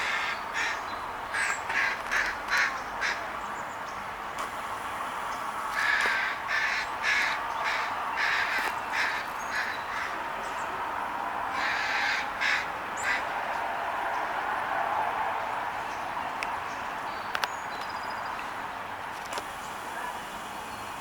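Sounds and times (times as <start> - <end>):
crows cawing: 0.0 - 3.3, 5.7 - 10.3, 11.5 - 13.4.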